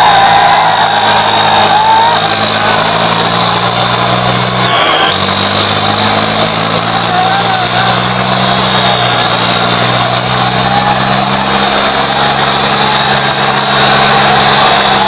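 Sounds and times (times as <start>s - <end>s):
diesel tractor engines running: 0.0s - 15.0s.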